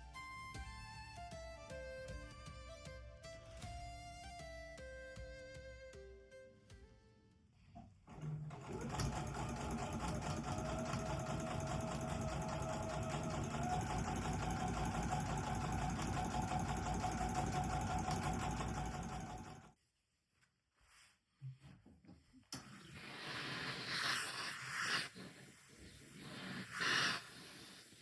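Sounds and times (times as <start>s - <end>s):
sewing machine stitching: 8.1s - 19.7s.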